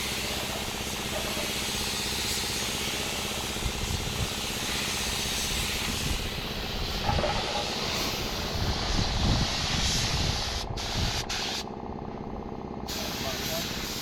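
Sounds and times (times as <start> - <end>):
paint spray gun hissing: 0.0 - 11.7, 12.9 - 14.0
low running rumble: 5.4 - 13.8.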